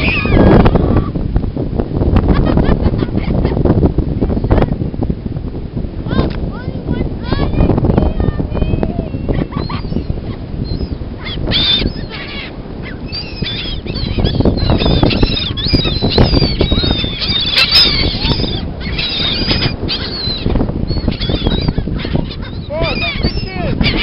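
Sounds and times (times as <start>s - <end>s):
beach birds squawking: 0.0s - 1.1s, 8.6s - 24.0s.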